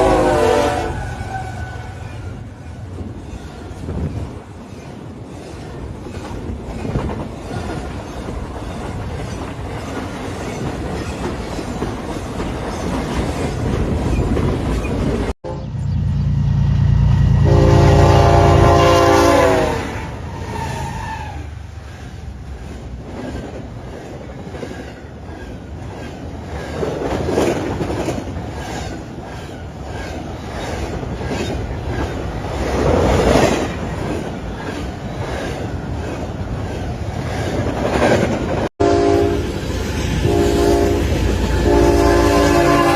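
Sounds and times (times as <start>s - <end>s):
train horn chord: 0.0s - 1.1s, 15.4s - 20.2s, 38.8s - 39.6s, 40.2s - 42.9s
heavy train rumble: 0.0s - 42.9s
train wheels clattering: 2.7s - 15.3s, 21.8s - 38.7s.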